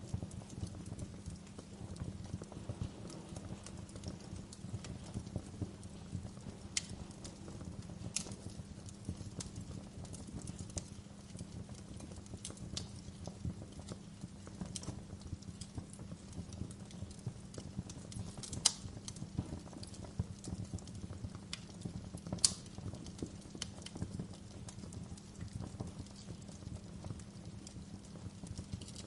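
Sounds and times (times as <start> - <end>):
sharp pops of fire: 0.0 - 29.0
wood fire crackling: 0.0 - 29.0.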